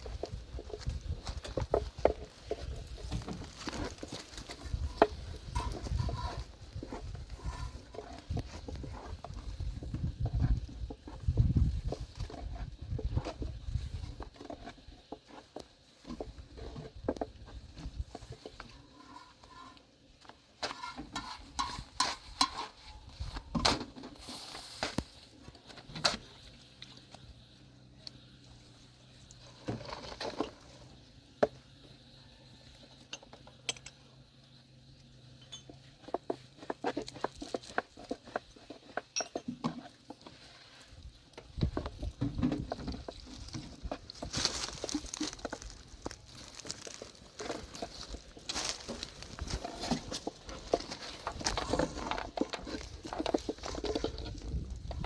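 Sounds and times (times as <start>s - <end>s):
hard objects clinking and knocking: 35.4s - 39.9s.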